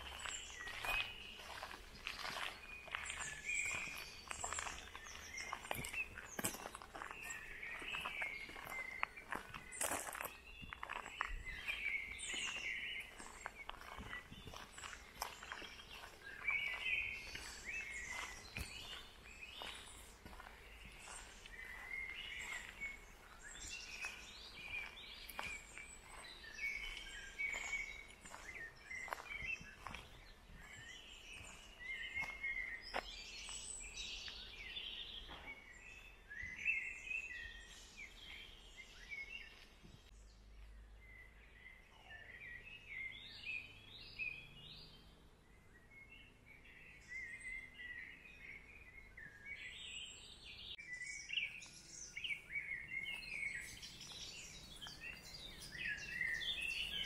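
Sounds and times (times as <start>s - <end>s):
footsteps crunching on gravel: 0.0s - 36.6s, 51.6s - 57.0s
small birds chirping and singing: 0.0s - 57.0s.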